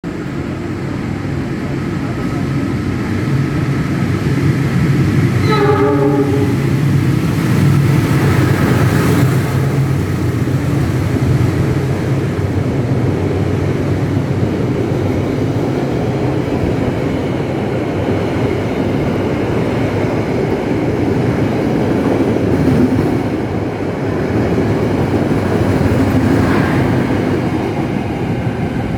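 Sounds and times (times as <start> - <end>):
train passing with low rumble: 0.0 - 28.9
train horn: 5.4 - 7.2.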